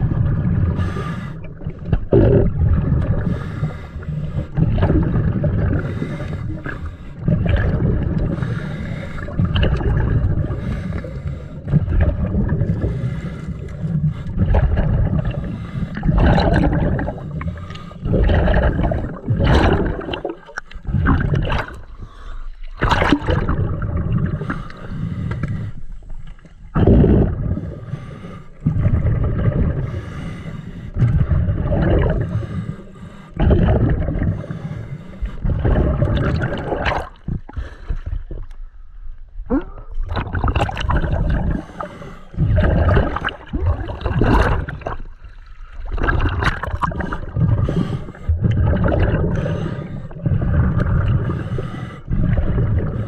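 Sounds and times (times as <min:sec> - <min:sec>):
bubbles gurgling underwater: 0:00.0 - 0:25.1, 0:26.1 - 0:28.0, 0:28.6 - 0:30.1, 0:31.0 - 0:32.6, 0:33.4 - 0:38.7, 0:39.4 - 0:53.0
diver breathing through regulator: 0:00.7 - 0:01.7, 0:03.1 - 0:04.8, 0:05.6 - 0:07.5, 0:08.1 - 0:09.6, 0:10.3 - 0:11.9, 0:12.6 - 0:22.8, 0:24.1 - 0:26.4, 0:27.0 - 0:38.9, 0:41.2 - 0:44.8, 0:46.8 - 0:53.0.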